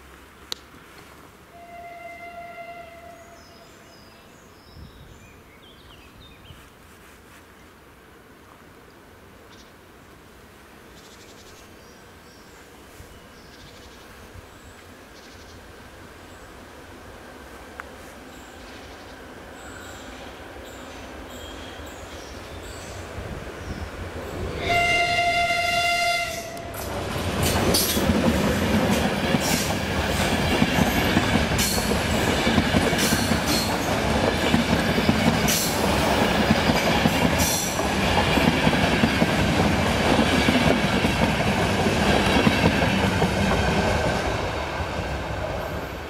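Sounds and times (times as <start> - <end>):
train horn blast: 1.5 - 3.9, 24.6 - 26.8
wheels clacking over rail joints: 26.6 - 44.6.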